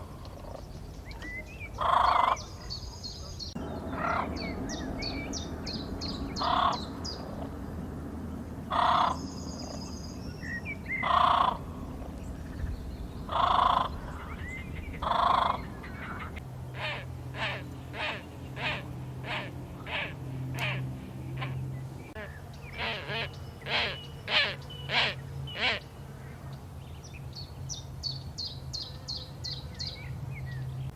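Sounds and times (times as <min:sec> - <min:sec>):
small birds chirping: 0:00.0 - 0:30.9
crow cawing: 0:01.8 - 0:02.4, 0:08.7 - 0:09.2, 0:11.0 - 0:11.6, 0:13.3 - 0:14.0, 0:15.0 - 0:20.8.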